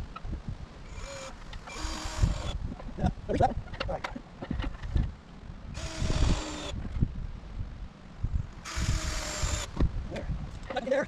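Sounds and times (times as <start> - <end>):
power drill whining: 0.9 - 2.6, 5.8 - 6.8, 8.6 - 9.8.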